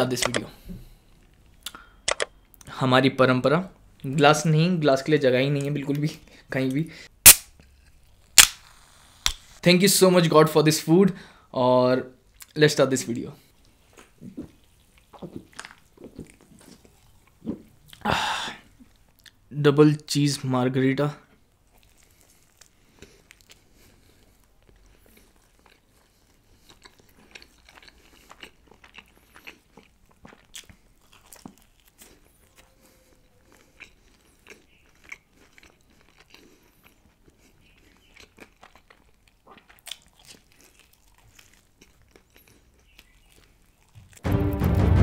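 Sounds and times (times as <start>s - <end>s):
chewing pizza with crust crunches: 13.6s - 18.1s, 21.2s - 44.3s
loud music: 44.2s - 45.0s.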